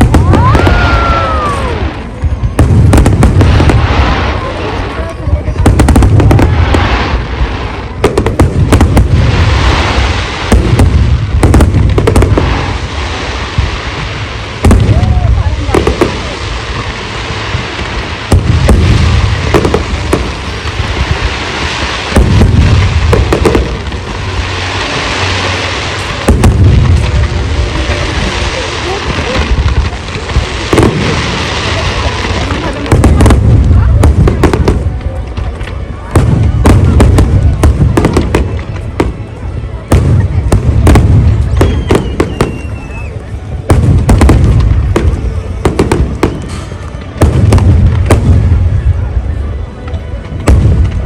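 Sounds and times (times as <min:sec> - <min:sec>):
firework whistle: 0:00.0 - 0:02.2, 0:41.3 - 0:43.4
continuous rushing hiss: 0:00.0 - 0:51.0
deep rumble of explosions: 0:00.0 - 0:51.0
fireworks bursting with loud bangs: 0:00.0 - 0:51.0.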